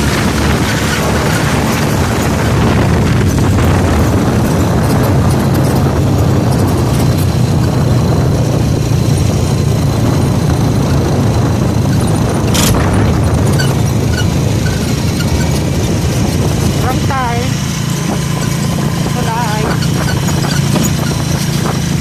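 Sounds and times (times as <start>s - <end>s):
motorcycle engine and road noise: 0.0s - 22.0s.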